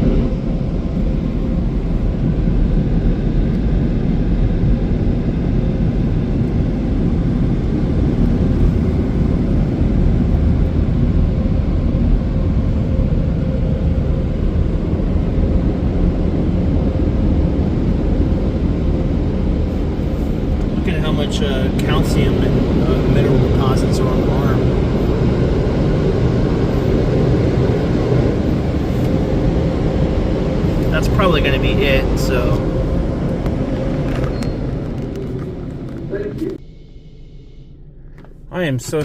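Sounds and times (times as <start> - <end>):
car wash dryer blowers: 5.7 - 36.6.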